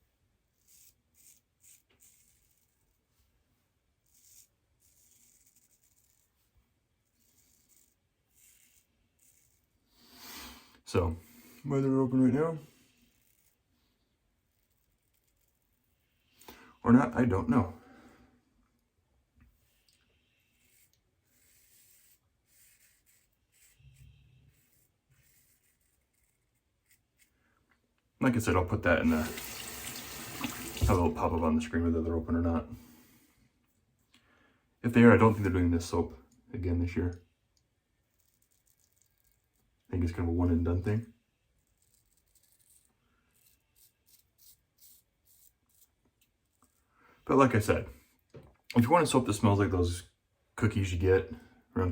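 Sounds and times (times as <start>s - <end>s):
faint rubbing: 0.5s - 10.7s, 12.3s - 16.4s, 19.5s - 27.4s, 41.4s - 46.9s.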